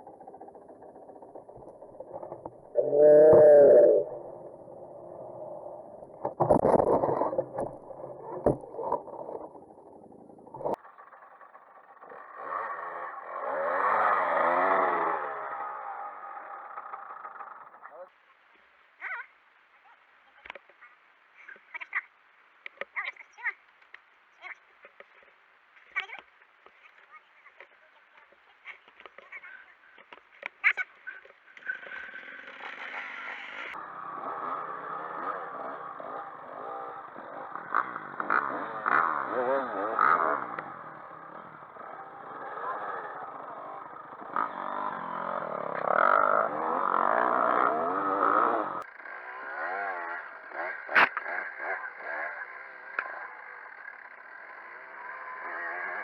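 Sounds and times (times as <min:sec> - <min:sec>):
motorcycle engine revving: 0:00.0 - 0:18.1, 0:31.5 - 0:56.0.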